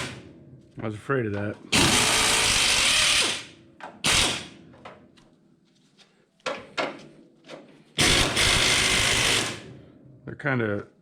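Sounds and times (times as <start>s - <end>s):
impact wrench bursts: 1.7s - 4.6s, 8.0s - 9.8s.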